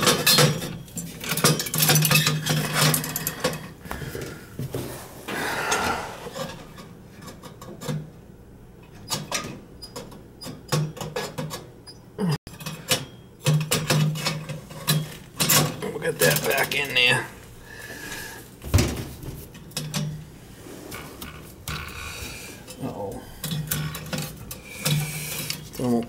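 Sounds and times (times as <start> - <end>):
metal tools clinking and knocking: 0.0 - 3.7.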